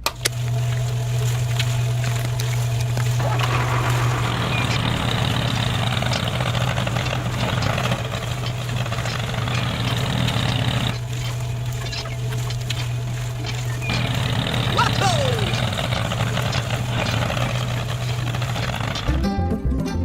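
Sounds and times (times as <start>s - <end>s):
engine-like running drone: 0.0s - 19.6s
low hum: 0.0s - 19.6s.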